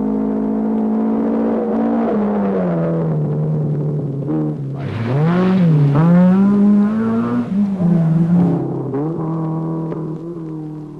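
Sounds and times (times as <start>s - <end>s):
rally car engine revving: 0.0s - 10.9s.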